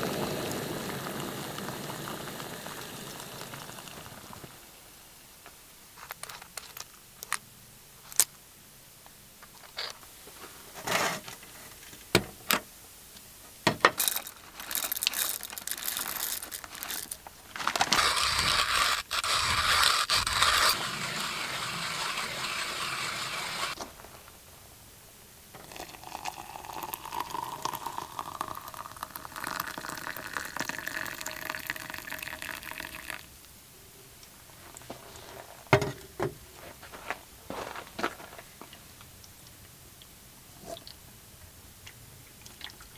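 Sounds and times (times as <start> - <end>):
boiled water being poured: 0.0 - 4.6, 25.6 - 33.3.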